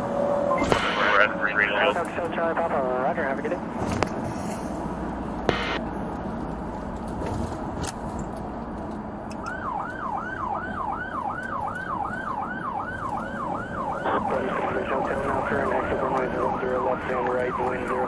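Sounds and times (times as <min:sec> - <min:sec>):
lower siren tone: 0:05.5 - 0:05.8, 0:09.5 - 0:18.0
siren yelping: 0:05.5 - 0:05.8, 0:09.5 - 0:18.0.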